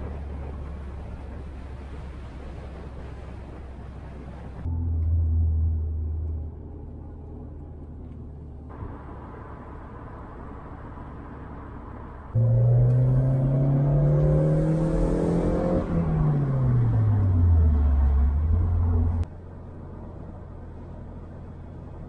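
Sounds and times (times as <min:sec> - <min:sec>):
car engine accelerating: 0:04.6 - 0:11.6, 0:12.2 - 0:19.3.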